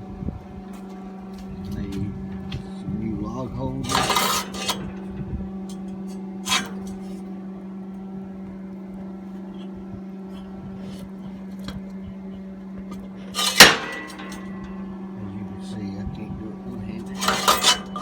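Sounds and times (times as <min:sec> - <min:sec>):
steady low hum: 0:00.0 - 0:18.0
sawmill parts knocking: 0:03.8 - 0:07.2, 0:12.8 - 0:15.1, 0:16.9 - 0:18.0.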